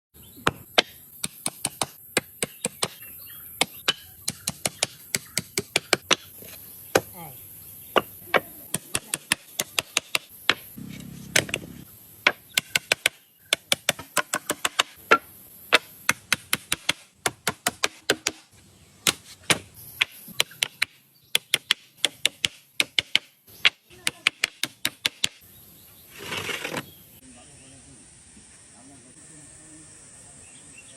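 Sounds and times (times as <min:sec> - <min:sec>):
hand tool tapping wood: 0:08.0 - 0:11.7, 0:12.3 - 0:15.2, 0:19.1 - 0:25.4.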